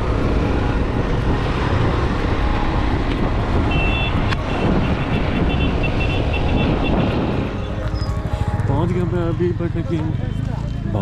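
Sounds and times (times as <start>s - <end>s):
wind noise: 0.0s - 8.8s
motorcycle engine running: 0.0s - 11.0s.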